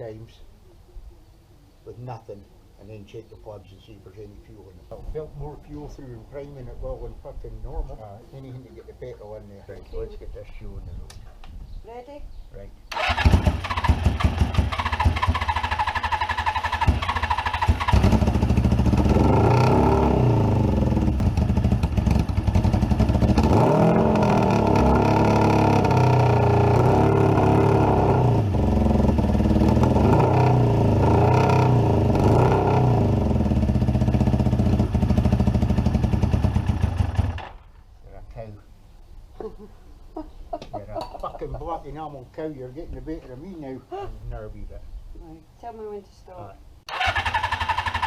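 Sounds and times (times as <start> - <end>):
motorcycle engine cranking: 12.9 - 19.1, 46.9 - 48.0
engine running and revving: 16.8 - 37.4.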